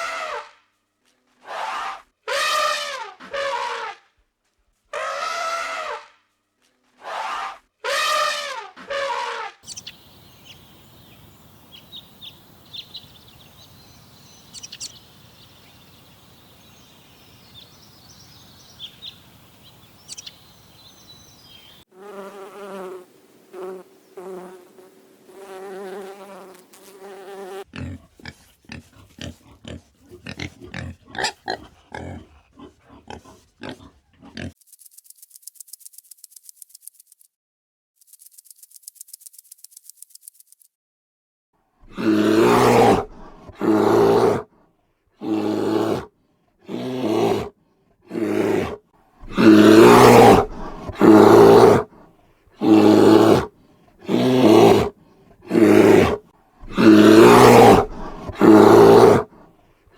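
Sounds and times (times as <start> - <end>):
repeated animal calls: 7.0 - 24.6, 25.4 - 34.6, 41.8 - 44.5, 45.2 - 59.5
pitched animal calls: 7.1 - 21.8, 27.6 - 34.6, 48.1 - 51.9, 52.6 - 59.3
high chirps: 9.7 - 21.8.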